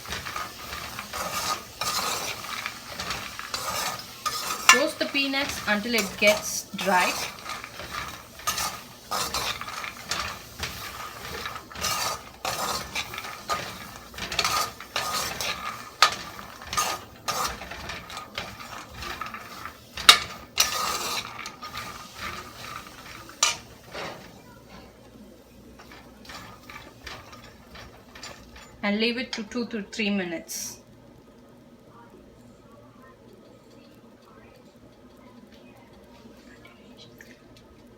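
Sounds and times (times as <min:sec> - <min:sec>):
utensil scraping a pan: 0:00.0 - 0:28.8
nuts rattling in a pan: 0:00.0 - 0:29.7.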